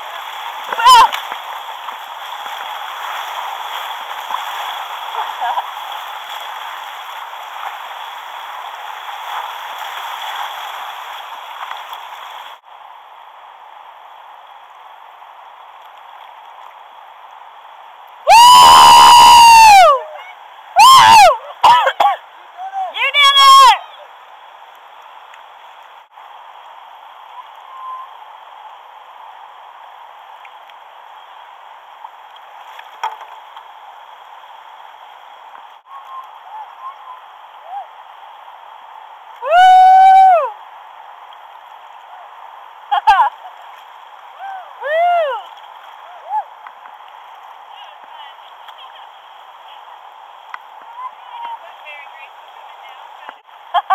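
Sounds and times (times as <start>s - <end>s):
river water running: 0.0s - 53.9s.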